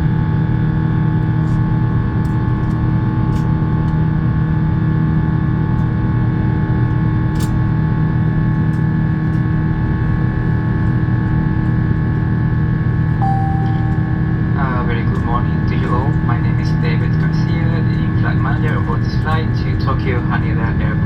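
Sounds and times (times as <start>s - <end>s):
aircraft cabin engine rumble: 8.5s - 21.0s.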